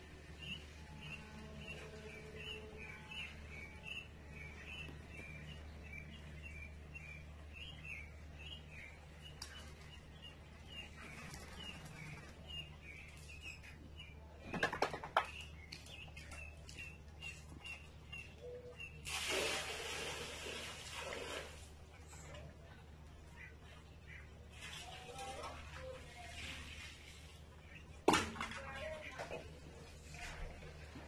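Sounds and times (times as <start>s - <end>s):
steady low hum: 0.0s - 19.0s
small birds chirping: 0.1s - 19.1s.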